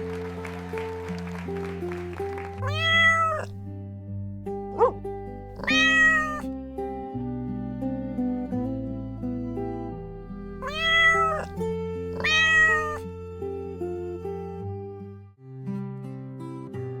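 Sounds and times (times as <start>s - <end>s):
cat meowing: 2.6s - 3.6s, 5.6s - 6.5s, 10.6s - 13.0s
gentle background music: 6.4s - 12.2s.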